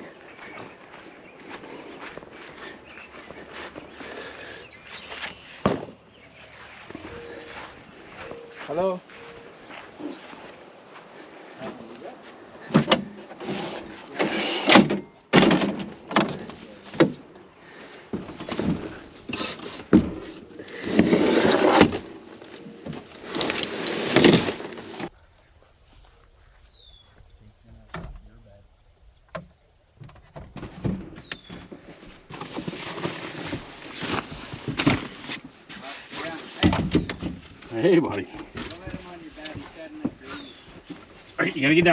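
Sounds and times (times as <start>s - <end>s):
scraping and rustling: 13.0s - 37.8s
sharp knocks and clatters: 29.3s - 35.4s.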